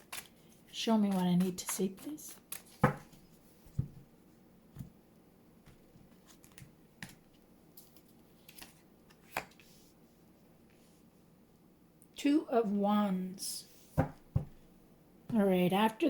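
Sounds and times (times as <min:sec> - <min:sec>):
tarot cards clicking and tapping: 0:00.0 - 0:04.0, 0:05.6 - 0:07.2.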